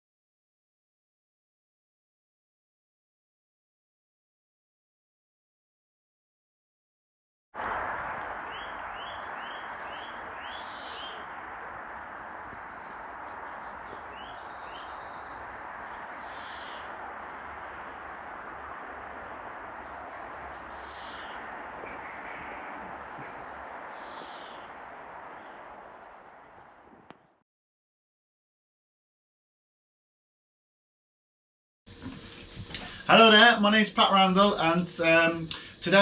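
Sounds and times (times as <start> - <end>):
outdoor background hiss: 7.6 - 27.4, 31.9 - 36.0
bird chirping quickly: 8.5 - 25.9.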